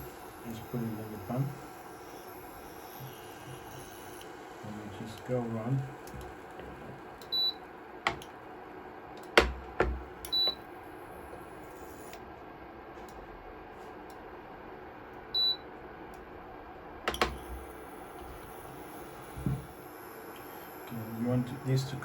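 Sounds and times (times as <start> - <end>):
sharp clicks and knocks: 8.0 - 8.4, 17.1 - 17.5
short electronic beeps: 10.3 - 10.6, 15.4 - 15.6.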